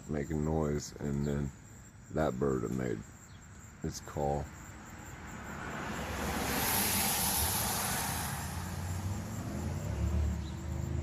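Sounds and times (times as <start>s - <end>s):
car tyre and road hiss: 4.7s - 11.0s
low engine hum: 5.3s - 11.0s.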